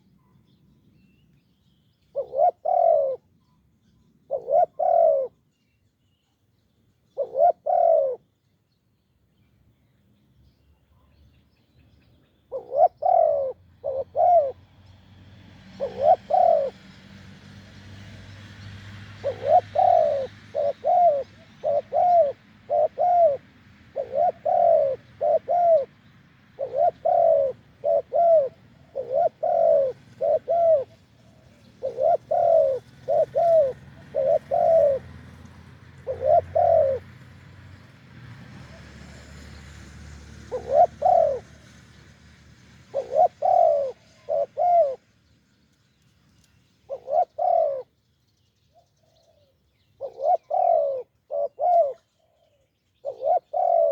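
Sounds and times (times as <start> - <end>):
dove cooing: 2.1 - 3.3, 4.3 - 5.4, 7.1 - 8.3, 12.5 - 14.7, 15.7 - 17.0, 19.1 - 37.9, 40.3 - 41.8, 42.8 - 45.0, 46.9 - 47.9, 49.0 - 53.9.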